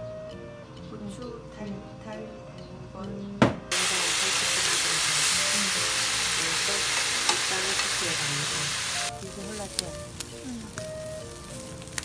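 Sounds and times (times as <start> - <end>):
pork sizzling in a hot pan: 3.7 - 12.0.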